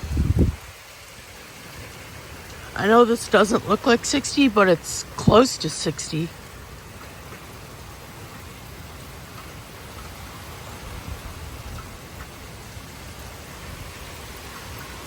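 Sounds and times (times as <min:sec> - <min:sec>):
wind rumbling on microphone: 0:00.0 - 0:02.8, 0:08.6 - 0:15.0
steady rain falling: 0:00.0 - 0:15.0.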